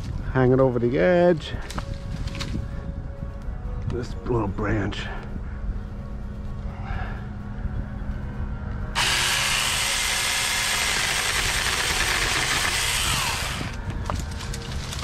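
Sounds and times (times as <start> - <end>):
chainsaw cutting branch: 9.0 - 13.8.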